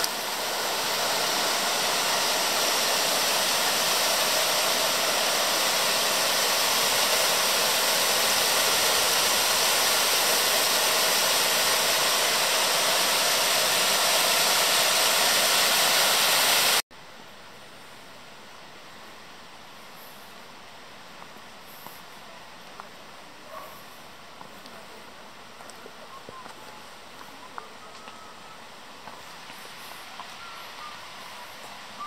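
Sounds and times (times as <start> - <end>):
waterfall rushing: 0.0 - 16.8
faint hiss: 0.0 - 32.0.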